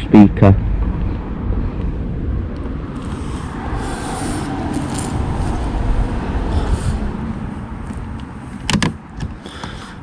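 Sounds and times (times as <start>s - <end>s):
steady low rumble: 0.0s - 9.1s
plastic rubbing and scraping: 3.0s - 5.8s, 8.6s - 9.0s.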